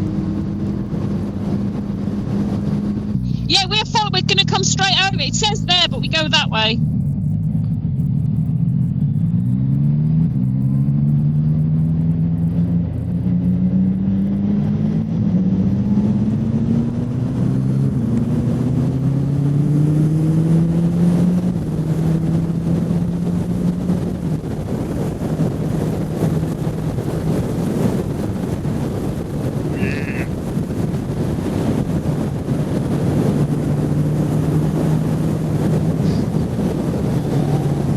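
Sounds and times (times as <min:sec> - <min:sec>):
motorcycle engine revving: 0:00.0 - 0:37.9
wind rushing: 0:21.6 - 0:37.9.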